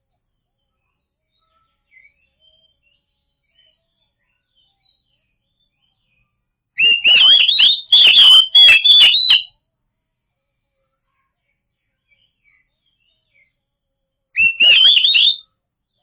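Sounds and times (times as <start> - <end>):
bird singing whistled notes: 6.8 - 9.5, 14.4 - 15.4.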